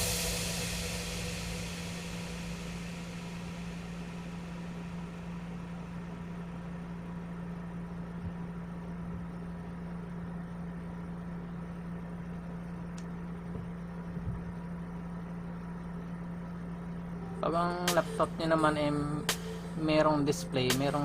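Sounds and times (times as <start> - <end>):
faint hiss: 0.0 - 4.6
low electrical hum: 0.0 - 21.0.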